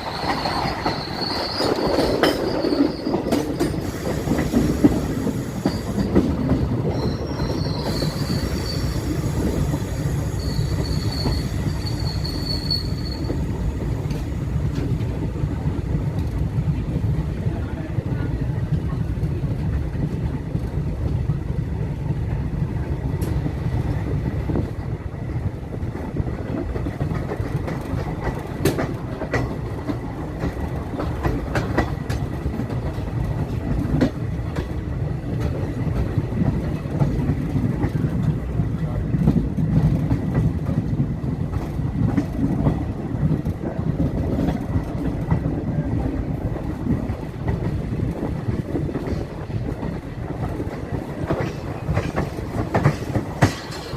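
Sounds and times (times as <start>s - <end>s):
train rumbling on track: 0.0s - 53.9s
wheels clicking over rail joints: 26.0s - 38.4s, 39.1s - 53.9s.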